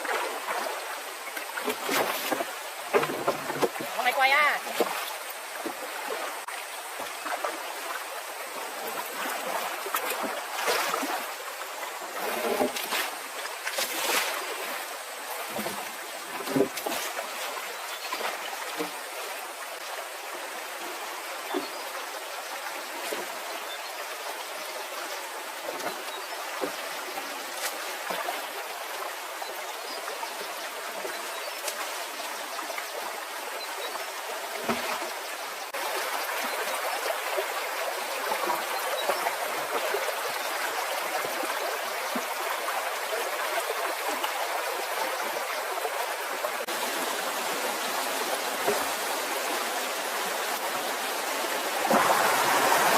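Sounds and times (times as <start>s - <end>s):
stream flowing: 0.0s - 52.9s.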